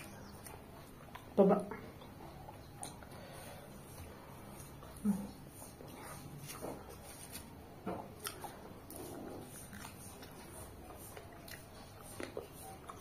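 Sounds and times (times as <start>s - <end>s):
wet chewing and lip smacks: 0.0s - 1.4s, 2.0s - 3.2s, 8.1s - 13.0s.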